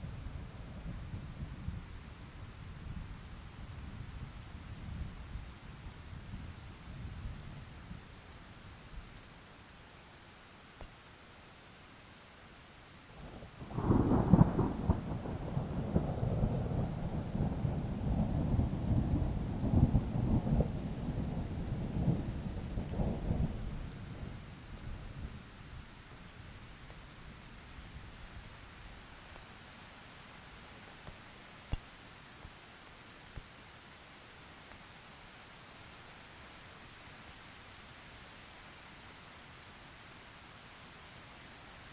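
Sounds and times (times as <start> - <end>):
rain pattering: 0.0 - 41.9
thunder cracking and rumbling: 13.7 - 24.4.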